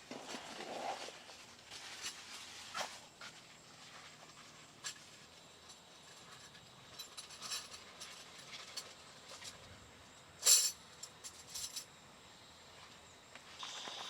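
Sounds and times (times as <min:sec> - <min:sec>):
rustling clatter: 0:00.0 - 0:09.7
faint steady hiss: 0:00.0 - 0:14.0.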